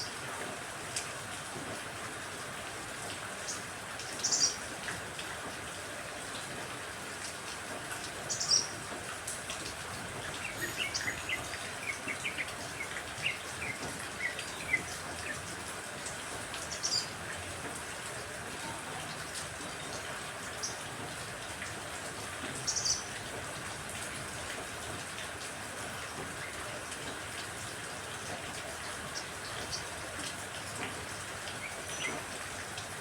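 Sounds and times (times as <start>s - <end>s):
steady rain hiss: 0.0s - 33.0s
songbirds chirping: 9.7s - 17.4s.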